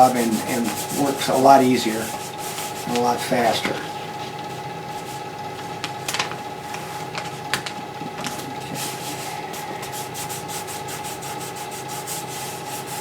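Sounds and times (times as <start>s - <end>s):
hand rubbing stencil onto wing: 0.0s - 3.6s, 8.3s - 13.0s.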